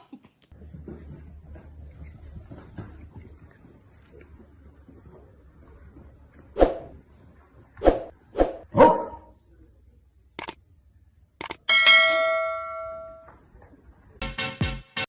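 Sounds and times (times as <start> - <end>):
dog barking: 8.7 - 9.3
sharp clicks: 10.4 - 10.6, 11.4 - 11.6
metallic bell ding: 11.7 - 13.3.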